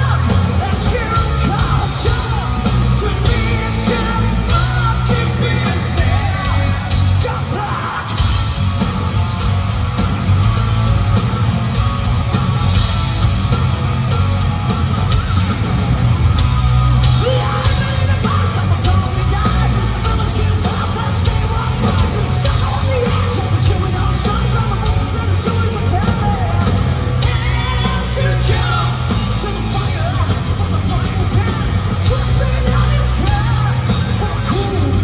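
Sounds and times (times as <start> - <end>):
person shouting and singing: 0.0 - 8.4, 17.0 - 35.0
hard rock band playing live: 0.0 - 35.0.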